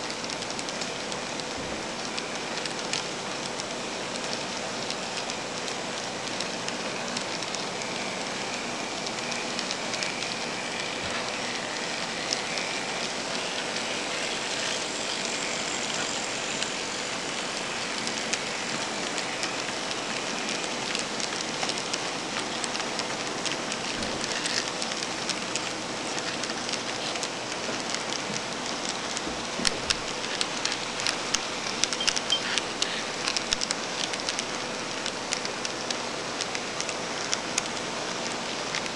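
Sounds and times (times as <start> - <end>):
faint steady hum: 0.0 - 38.9
wheels clicking: 0.3 - 38.9
model train rolling hiss: 3.8 - 31.8.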